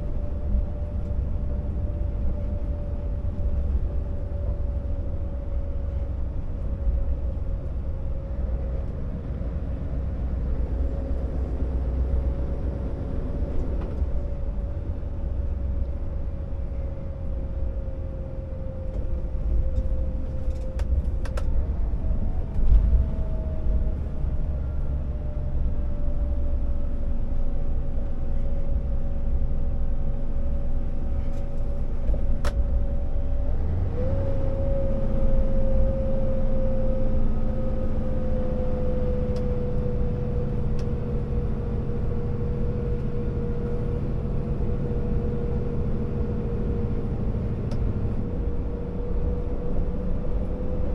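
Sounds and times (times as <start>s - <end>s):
diesel truck engine under load: 28.8s - 50.9s.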